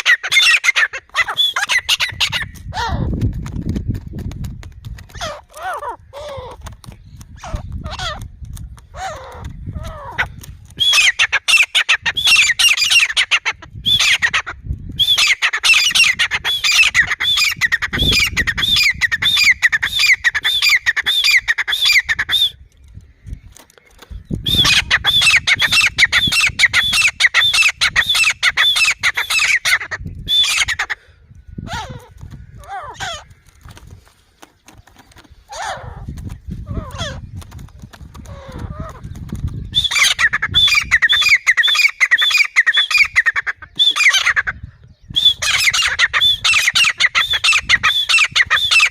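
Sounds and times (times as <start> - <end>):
lower falling bird calls: 0.0 - 48.9.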